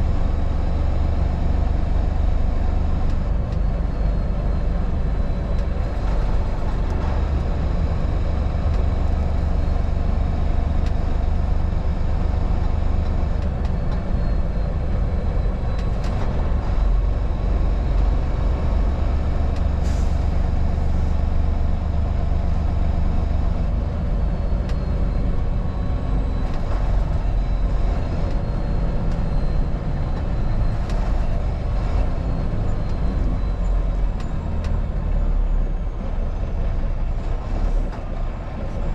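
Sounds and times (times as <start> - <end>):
vehicle engine and road noise: 0.0 - 38.9.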